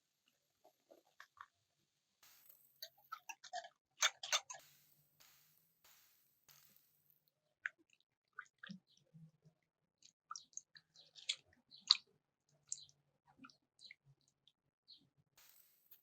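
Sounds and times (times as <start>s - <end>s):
utensils clicking and tapping: 4.0s - 7.2s.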